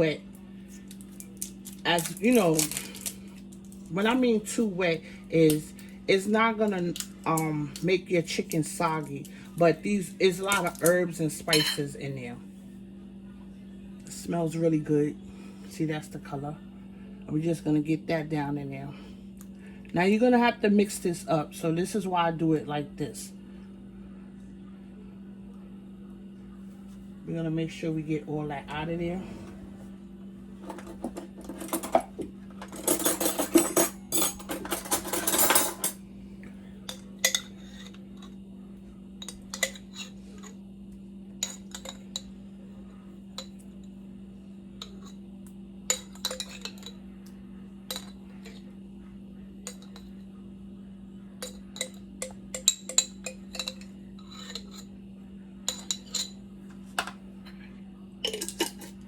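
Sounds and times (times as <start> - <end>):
spoon clinking on container: 51.4 - 54.8.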